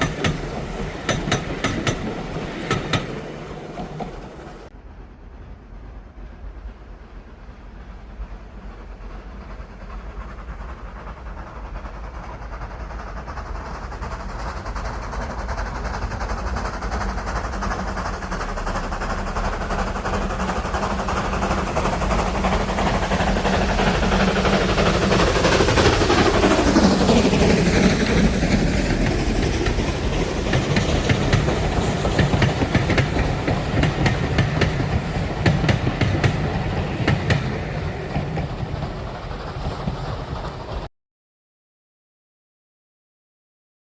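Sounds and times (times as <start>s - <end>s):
wheels clacking over rail joints: 0.0s - 4.7s, 11.7s - 40.9s
steam train passing: 0.0s - 40.9s.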